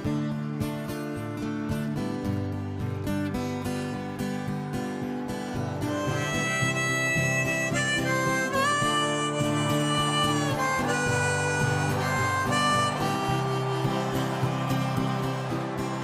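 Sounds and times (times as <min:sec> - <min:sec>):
strummed acoustic guitar: 0:00.0 - 0:16.0
harmonica melody: 0:04.6 - 0:16.0.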